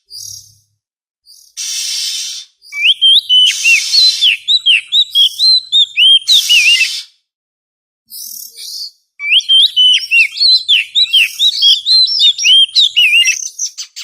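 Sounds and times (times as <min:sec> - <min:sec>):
bird singing whistled notes: 0:00.0 - 0:00.6, 0:01.3 - 0:07.1, 0:08.1 - 0:14.0
harsh rasping bird notes: 0:01.6 - 0:07.1.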